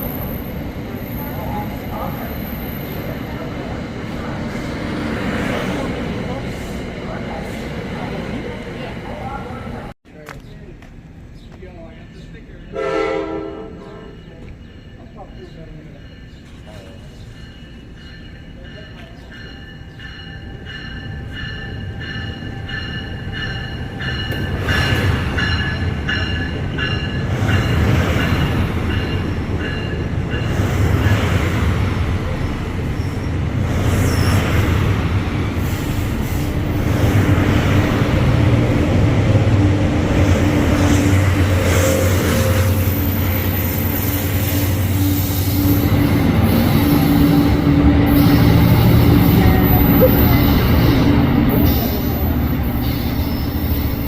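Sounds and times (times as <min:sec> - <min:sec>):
wheels squealing on rails: 0:00.0 - 0:07.6, 0:32.3 - 0:34.9, 0:40.6 - 0:54.0
passenger train passing: 0:00.0 - 0:54.0.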